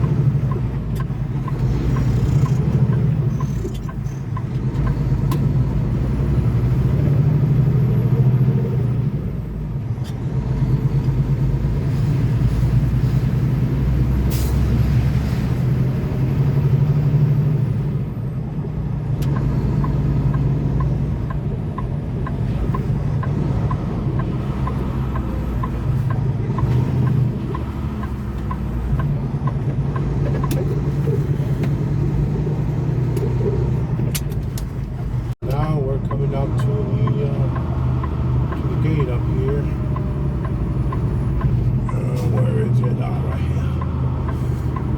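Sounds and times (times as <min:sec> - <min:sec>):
truck engine and road hum: 0:00.0 - 0:44.9
light regular ticking: 0:19.2 - 0:31.8, 0:35.4 - 0:44.9.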